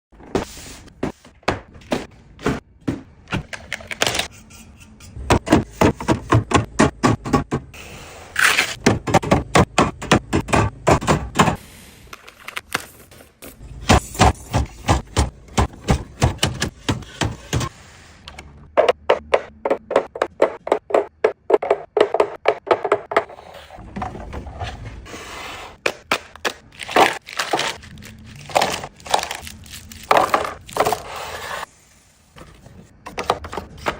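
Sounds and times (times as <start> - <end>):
grocery items clicking and thunking: 0.2 - 7.8, 8.4 - 11.6, 12.2 - 31.6.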